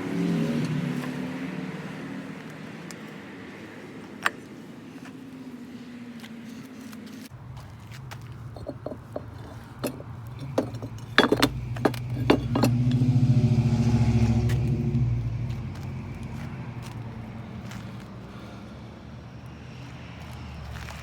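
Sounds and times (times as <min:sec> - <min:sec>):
sharp clinks and knocks: 0:08.5 - 0:13.3.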